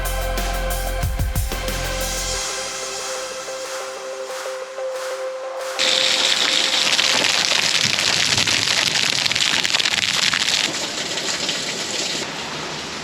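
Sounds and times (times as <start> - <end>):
heavy rain pouring: 5.6 - 13.0.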